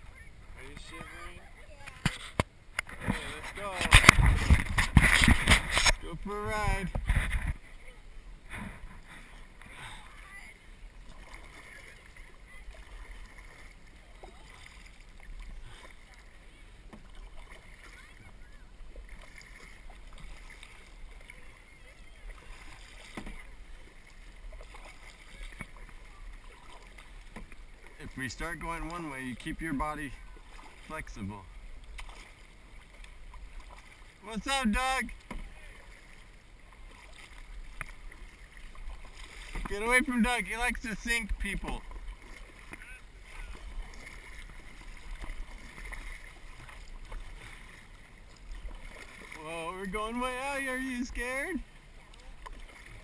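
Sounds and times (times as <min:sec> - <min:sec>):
light splashes: 0:00.0 - 0:53.0
paddle strokes: 0:00.0 - 0:53.0
water moving against hull: 0:00.0 - 0:53.0
wind rumble on microphone: 0:03.9 - 0:07.6.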